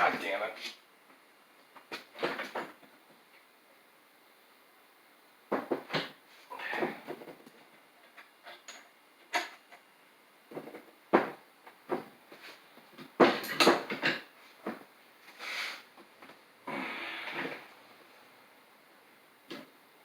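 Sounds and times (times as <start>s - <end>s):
metal parts clanking together: 13.2s - 14.2s.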